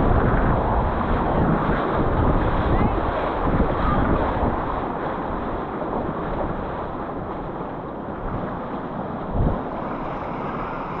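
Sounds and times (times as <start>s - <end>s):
wind buffeting microphone: 0.0s - 11.0s
river rushing: 8.0s - 11.0s.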